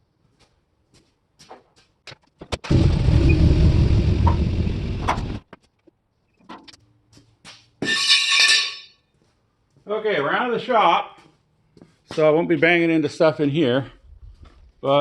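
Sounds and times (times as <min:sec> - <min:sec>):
steel flatbed rumbling and rattling: 0:02.7 - 0:05.4.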